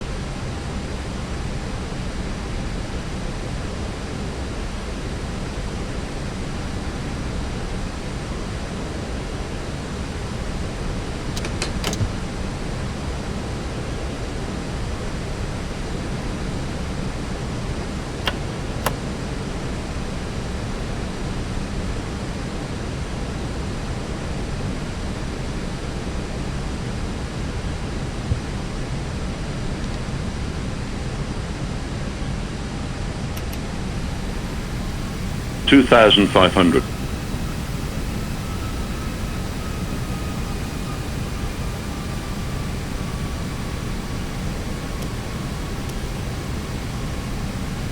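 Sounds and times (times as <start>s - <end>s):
airplane cabin airflow and engines: 2.3s - 30.0s, 33.3s - 47.9s
brief clicks: 11.4s - 12.2s, 34.2s - 47.8s.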